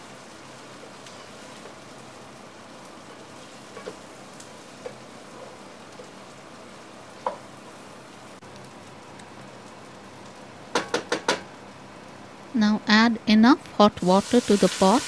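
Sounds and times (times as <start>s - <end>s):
food sizzling in oil: 0.0s - 8.4s, 13.8s - 15.0s.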